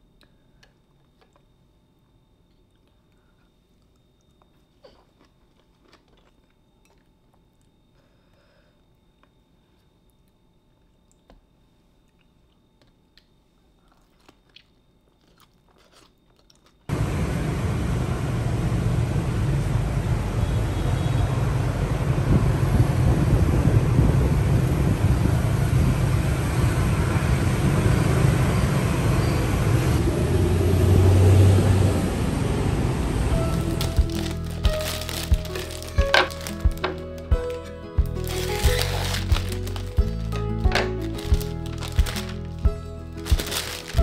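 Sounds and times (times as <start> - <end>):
soft chewing: 0.1 - 7.9, 9.2 - 16.9
passing traffic and motorbikes: 16.9 - 34.3.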